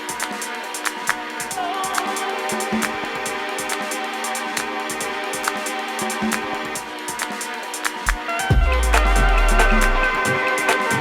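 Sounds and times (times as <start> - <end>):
electronic music with beat: 0.0 - 11.0
deep bass note: 8.5 - 10.2.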